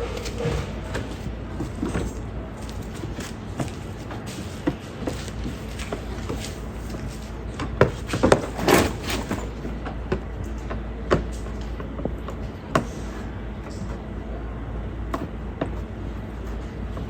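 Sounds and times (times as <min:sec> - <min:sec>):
knocks and clatter: 0:00.0 - 0:12.9
steady low hum: 0:00.0 - 0:17.0.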